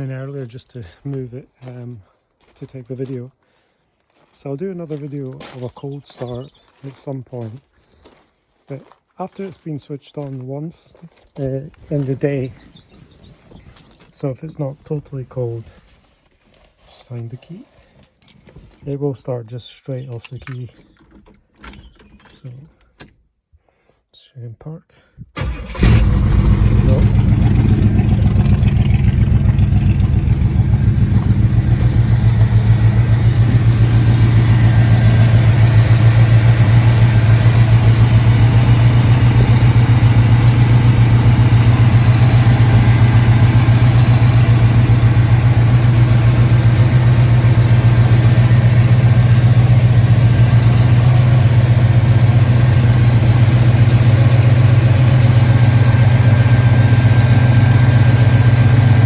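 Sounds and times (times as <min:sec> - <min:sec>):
car engine idling: 0:25.4 - 0:59.0.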